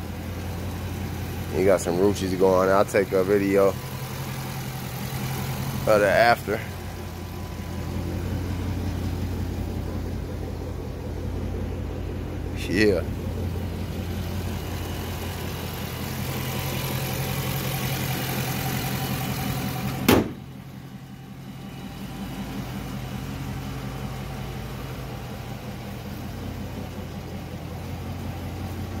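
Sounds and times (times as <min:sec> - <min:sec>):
car engine idling: 0:00.0 - 0:29.0
sharp knock: 0:20.0 - 0:20.4.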